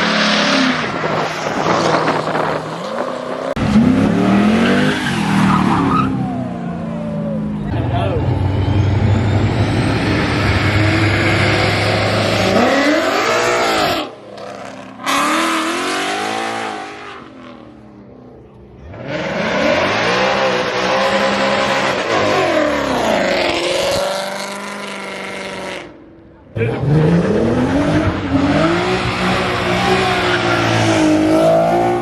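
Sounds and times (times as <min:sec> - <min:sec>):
car engine revving hard: 0:09.5 - 0:17.6, 0:18.9 - 0:25.9, 0:26.6 - 0:32.0.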